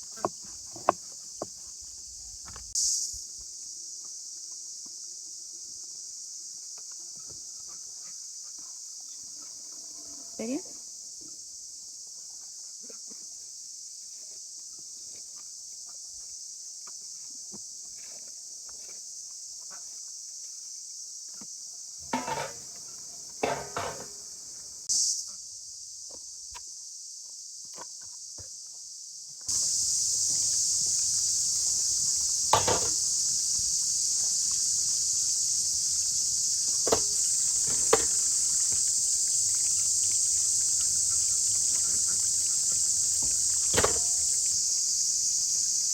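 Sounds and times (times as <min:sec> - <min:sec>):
insects chirping: 0:00.0 - 0:45.9.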